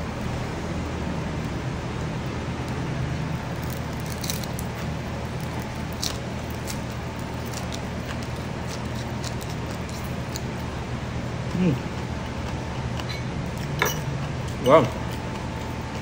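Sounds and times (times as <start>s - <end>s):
steady low hum: 0.0s - 16.0s
crispy noodles crunching: 3.5s - 10.7s.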